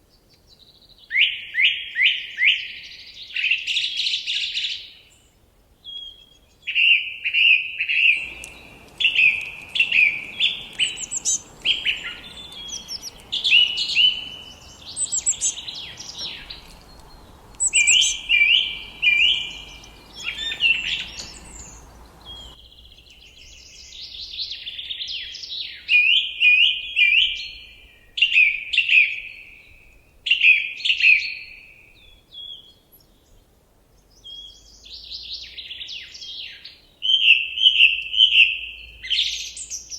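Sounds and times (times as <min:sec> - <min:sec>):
faint background hiss: 0:08.2 - 0:22.6
songbirds chirping and trilling: 0:08.2 - 0:24.0.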